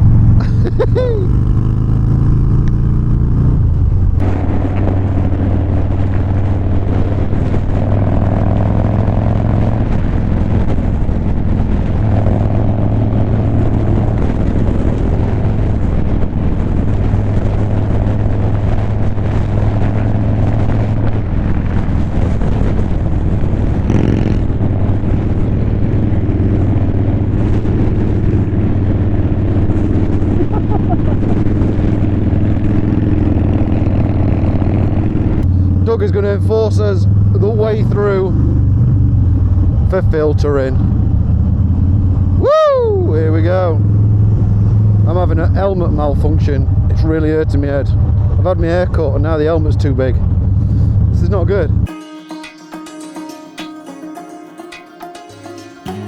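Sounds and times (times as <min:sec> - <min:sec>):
motorcycle engine running: 0:00.0 - 0:42.4, 0:43.0 - 0:51.9
road and wind noise: 0:00.0 - 0:51.9.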